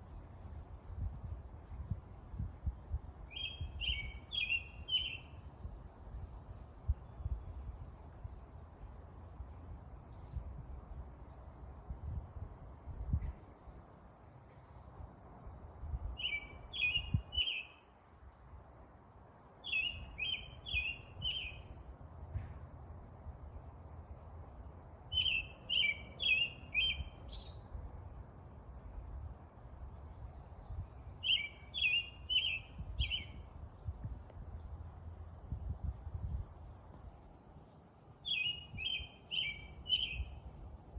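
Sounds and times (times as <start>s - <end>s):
bird singing short phrase: 3.3s - 5.4s, 25.1s - 28.2s, 30.3s - 34.0s, 38.2s - 40.4s.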